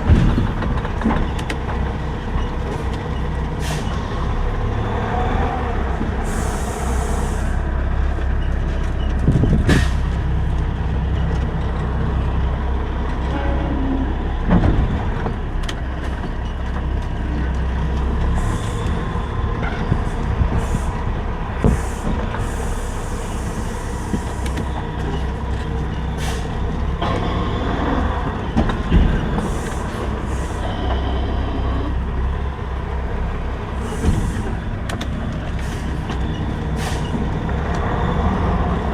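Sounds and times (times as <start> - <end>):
truck diesel engine rumbling: 0.0 - 38.9
air hissing: 6.2 - 7.6, 20.5 - 24.7.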